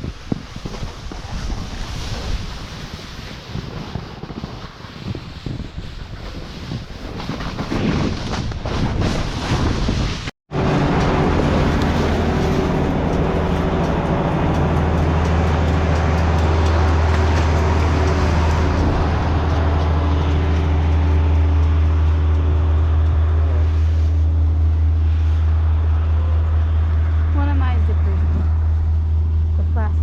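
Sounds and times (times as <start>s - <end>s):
motor droning: 10.6s - 29.9s.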